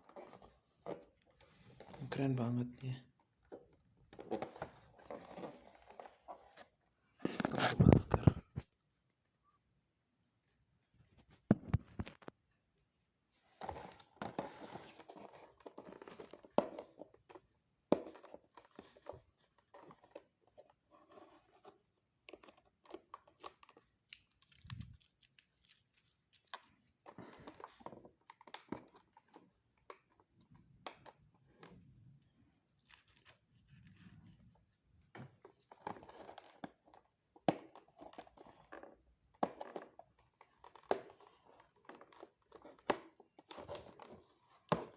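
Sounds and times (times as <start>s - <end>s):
plastic and paper tearing: 7.3s - 8.4s, 24.0s - 26.6s.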